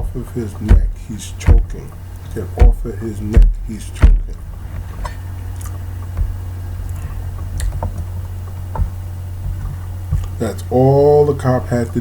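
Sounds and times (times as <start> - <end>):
low electrical hum: 0.0 - 12.0
soft eating noises: 4.4 - 11.5.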